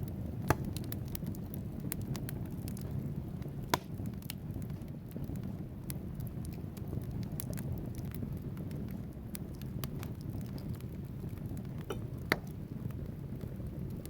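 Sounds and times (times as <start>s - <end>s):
burning logs crackling: 0.0s - 14.0s
low rumble of flames: 0.0s - 14.0s
loud pop from fire: 0.3s - 5.6s, 11.5s - 12.9s.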